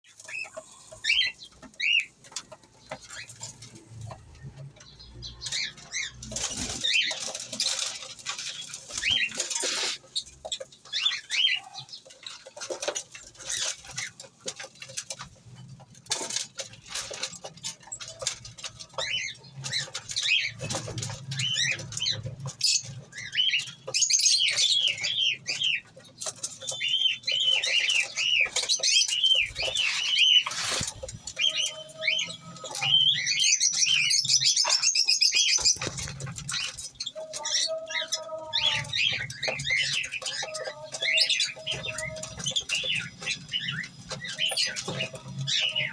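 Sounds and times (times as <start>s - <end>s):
high chirping calls: 18.9s - 45.9s.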